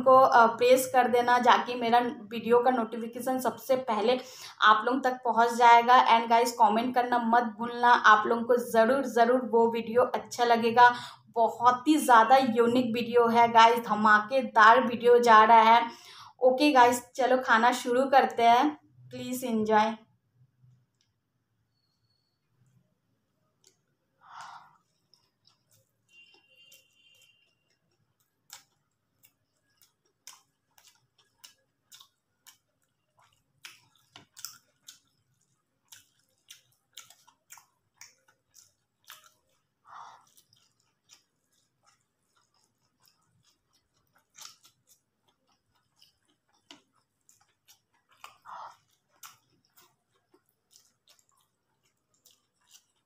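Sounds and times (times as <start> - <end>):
chewing and lip smacks: 23.5 - 53.0.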